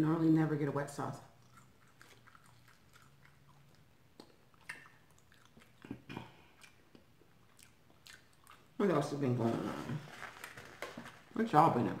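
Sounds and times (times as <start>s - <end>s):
person chewing food: 1.3s - 8.8s.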